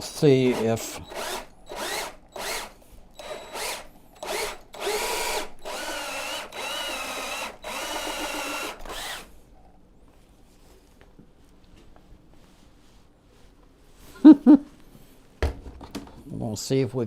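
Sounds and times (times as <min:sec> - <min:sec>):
power drill whining: 0:00.0 - 0:09.3.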